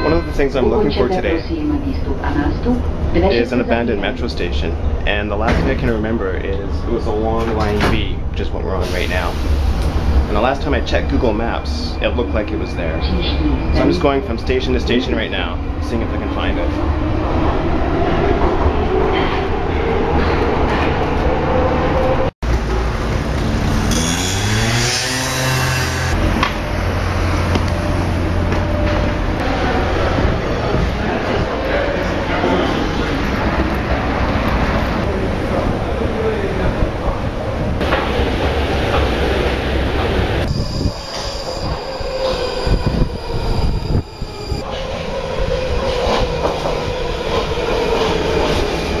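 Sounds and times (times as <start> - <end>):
metro train rumble: 0.0 - 49.0
electric traction motor whine: 22.6 - 29.4
wheels squealing on rail: 40.1 - 49.0
thin high whine: 40.4 - 44.6.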